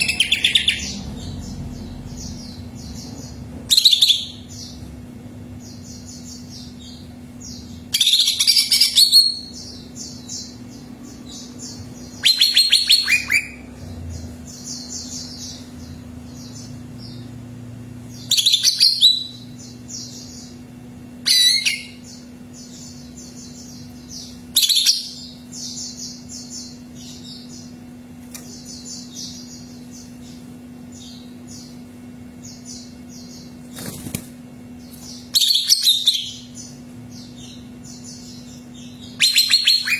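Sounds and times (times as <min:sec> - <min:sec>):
bird singing: 0:00.0 - 0:04.9, 0:05.5 - 0:34.0, 0:34.7 - 0:39.9
chattering bird notes: 0:00.0 - 0:17.4, 0:28.4 - 0:39.9
low hum: 0:00.0 - 0:39.9.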